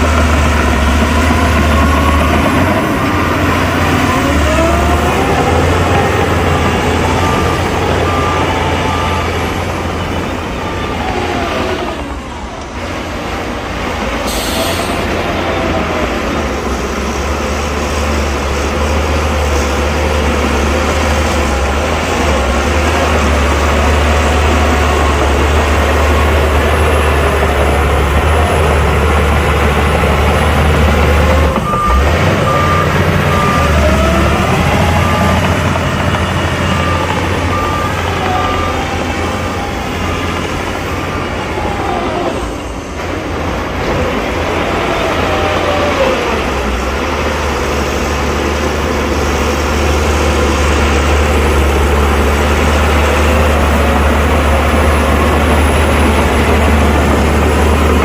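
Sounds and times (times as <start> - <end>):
dump truck diesel engine: 0.0 - 58.0
reversing beeper: 0.0 - 58.0
air brake hiss: 14.2 - 15.3.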